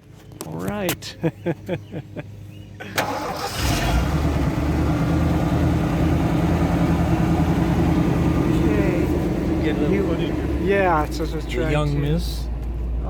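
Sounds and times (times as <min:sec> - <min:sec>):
vehicle engine starting and idling: 0:02.8 - 0:13.0.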